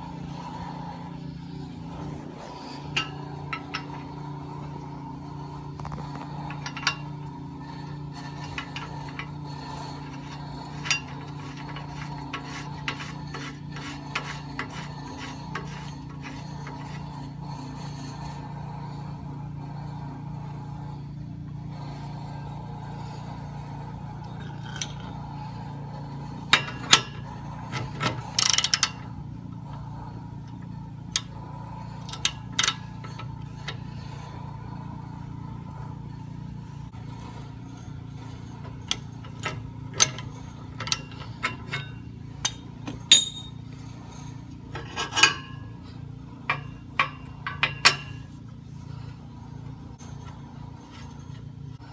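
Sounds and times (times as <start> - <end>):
steady low hum: 0.0 - 51.9
hand tools clicking on metal: 2.0 - 5.0, 5.7 - 17.7, 24.2 - 29.1, 31.9 - 34.3, 38.6 - 45.8, 46.4 - 48.6
sharp metal clinks: 43.1 - 43.6.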